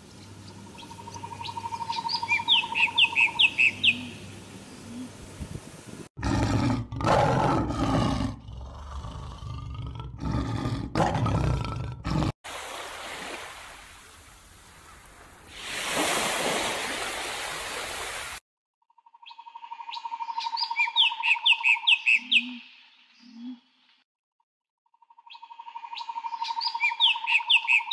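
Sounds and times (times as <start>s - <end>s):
leopard roaring growls: 6.2s - 12.4s
surf washing onto beach: 12.5s - 18.4s.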